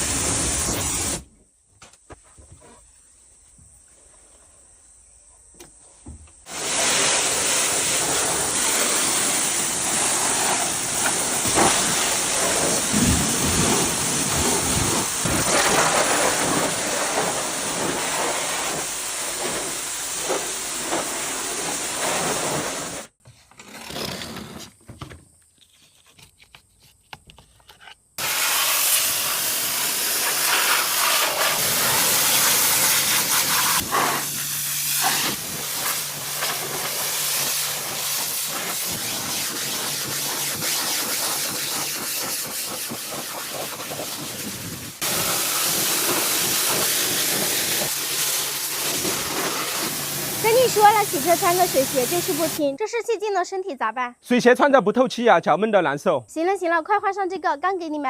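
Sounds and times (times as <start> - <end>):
pressure washer spraying: 0.0 - 1.2, 6.5 - 23.1, 28.2 - 52.6.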